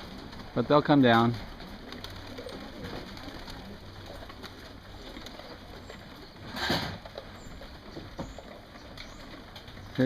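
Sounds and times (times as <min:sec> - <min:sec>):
pigeons cooing: 0:00.0 - 0:10.0
pigeons shuffling: 0:00.0 - 0:10.0.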